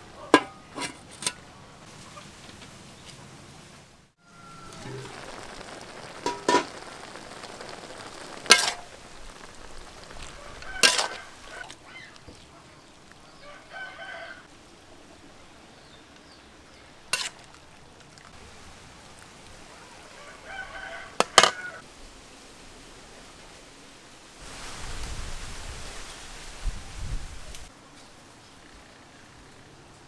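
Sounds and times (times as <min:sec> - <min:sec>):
metal spatula striking pan: 0:00.4 - 0:01.4
meat sizzling in a wok: 0:04.3 - 0:11.7.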